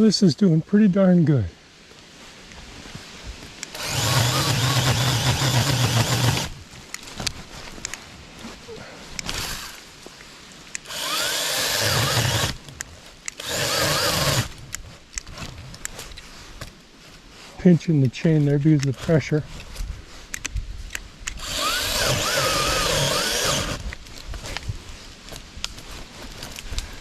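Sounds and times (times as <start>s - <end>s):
chainsaw cutting tree limb: 3.7s - 6.6s, 9.2s - 9.8s, 10.8s - 12.6s, 13.3s - 14.6s, 21.3s - 23.8s.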